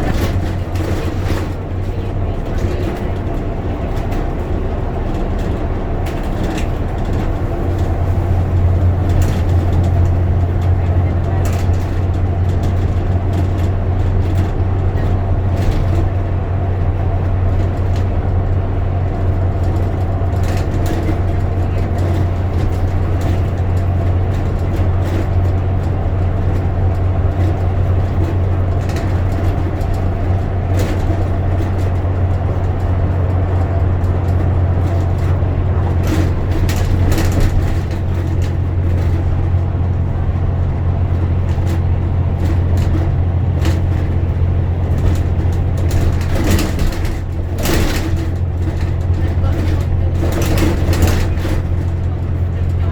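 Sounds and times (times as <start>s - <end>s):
bus engine and road drone: 0.0s - 52.9s
short rattles and clicks: 19.3s - 52.9s.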